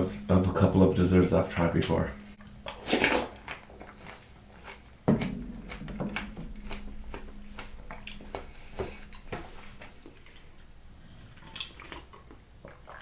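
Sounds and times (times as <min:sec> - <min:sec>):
wet chewing with crunches: 0:02.4 - 0:09.2, 0:11.0 - 0:13.0.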